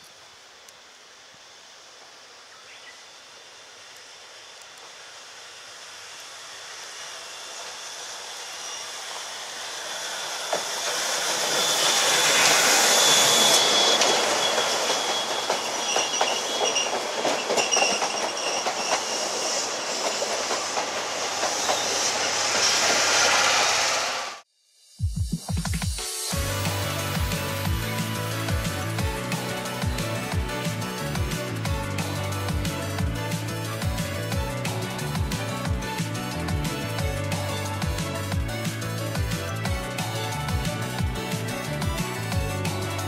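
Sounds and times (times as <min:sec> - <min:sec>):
steam locomotive passing: 0:03.4 - 0:24.5, 0:26.0 - 0:43.0
high wheel squeal: 0:07.2 - 0:24.4
wheels clicking over rail joints: 0:10.4 - 0:21.8.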